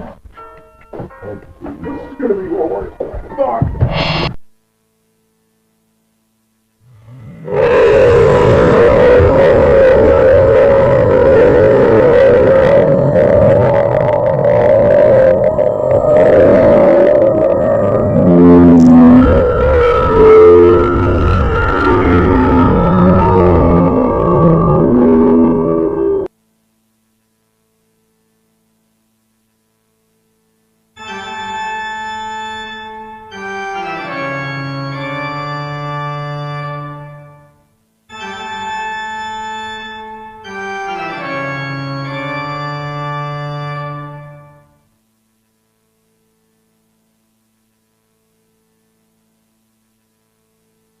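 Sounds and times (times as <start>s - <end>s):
organ playing chords: 31.0s - 37.1s.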